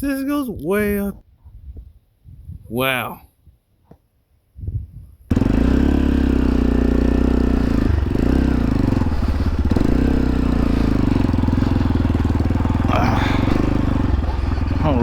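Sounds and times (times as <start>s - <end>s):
wind rushing over microphone: 0.0s - 2.8s, 4.6s - 5.3s
dirt bike engine running: 5.3s - 15.0s.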